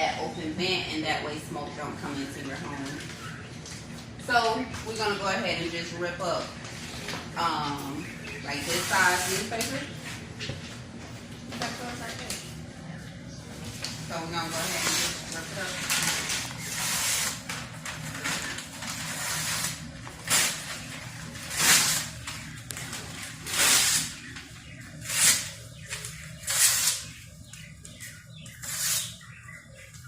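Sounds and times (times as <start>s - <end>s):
newspaper rustling: 13.6s - 25.5s
newspaper ripping: 14.6s - 24.2s.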